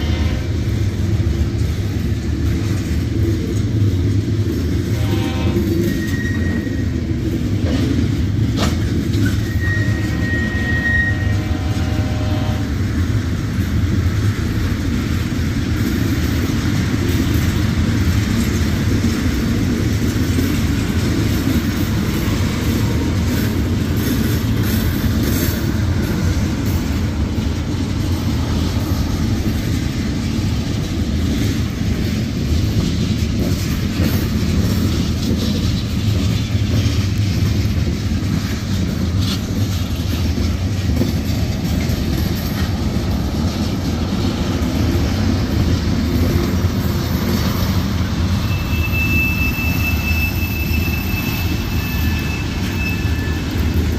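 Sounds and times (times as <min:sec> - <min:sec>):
steel wheels rumbling on rail: 0:00.0 - 0:53.9
high wheel squeals: 0:05.7 - 0:07.0, 0:09.2 - 0:11.8, 0:48.2 - 0:53.9.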